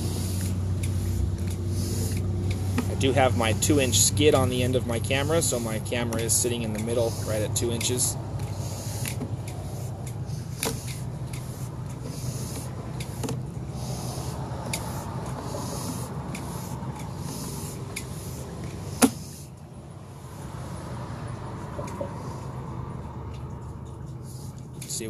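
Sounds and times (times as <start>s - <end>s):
cable rubbing and scraping: 0.0s - 19.6s
steady low hum: 0.0s - 25.0s.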